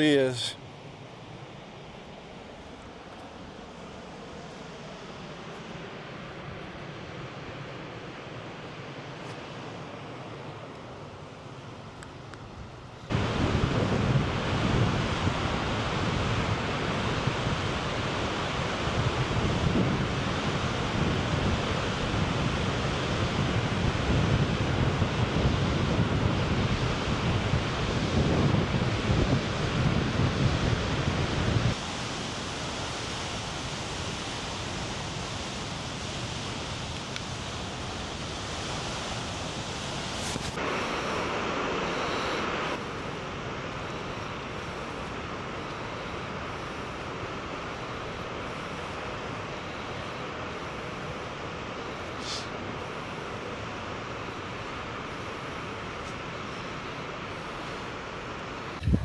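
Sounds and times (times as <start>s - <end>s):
waterfall rushing: 0.0s - 0.6s, 13.1s - 27.9s, 31.8s - 59.0s
wind buffeting microphone: 13.1s - 31.8s, 58.7s - 59.0s.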